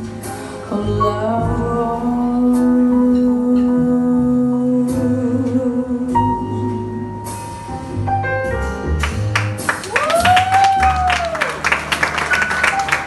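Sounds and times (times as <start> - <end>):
instrumental jazz ballad: 0.0 - 9.8.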